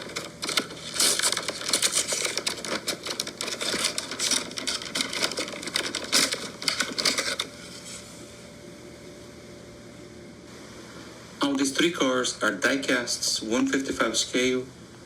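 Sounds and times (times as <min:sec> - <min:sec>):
plastic packaging crackling: 0:00.0 - 0:08.0.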